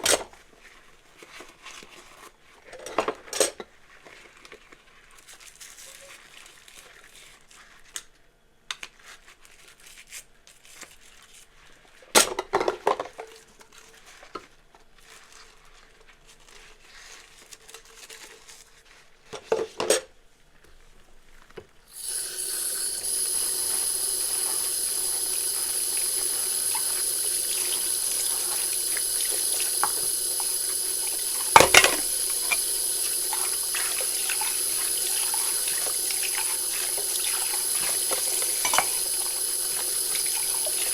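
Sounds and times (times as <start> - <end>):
tap water running into sink: 21.9 - 40.9.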